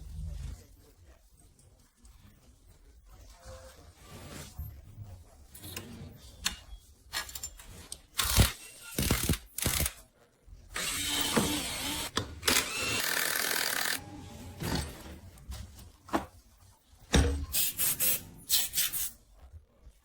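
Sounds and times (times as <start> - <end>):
steady power tool noise: 10.8 - 14.1.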